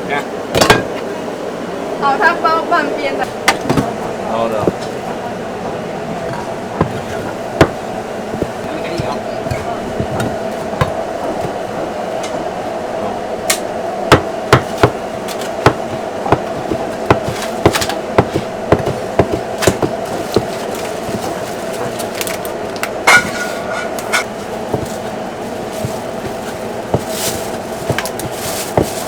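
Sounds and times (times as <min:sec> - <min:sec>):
background hum: 0:00.0 - 0:29.0
cleaver chopping on cutting board: 0:06.2 - 0:11.9, 0:13.5 - 0:21.9.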